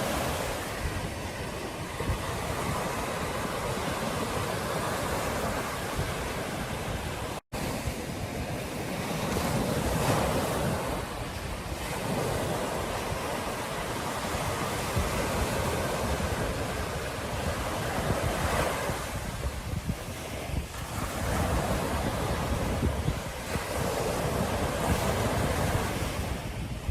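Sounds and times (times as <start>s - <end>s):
ocean surf washing onto beach: 0.0s - 26.9s
wind buffeting microphone: 0.0s - 26.9s.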